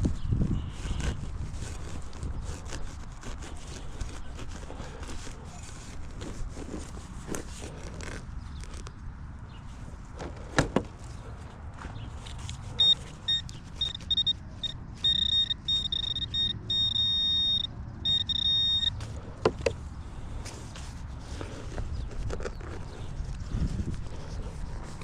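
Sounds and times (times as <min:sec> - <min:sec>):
metal detector beeping: 0:12.8 - 0:19.1.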